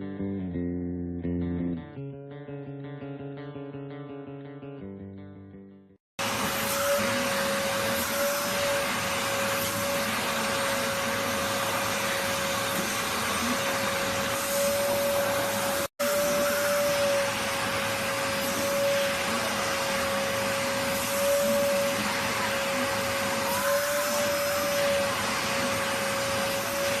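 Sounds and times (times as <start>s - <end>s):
vacuum cleaner running: 6.2s - 27.0s.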